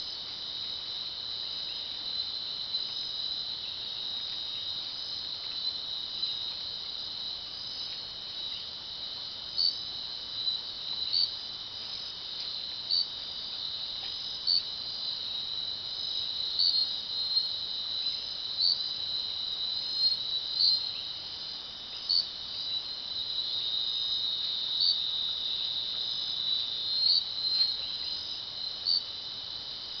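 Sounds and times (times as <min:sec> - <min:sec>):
insects trilling: 0:00.0 - 0:30.0
loud single insect chirp: 0:00.0 - 0:30.0.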